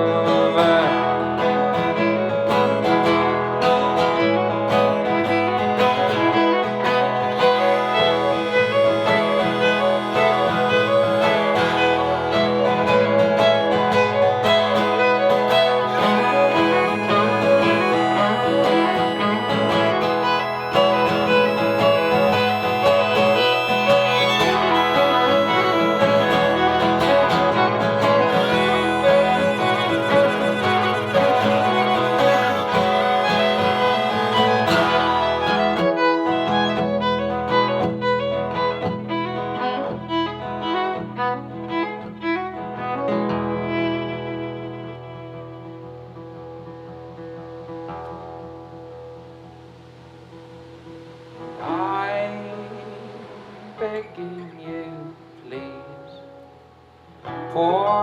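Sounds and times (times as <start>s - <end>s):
violin playing: 0.0s - 46.0s
acoustic guitar playing: 0.0s - 58.0s.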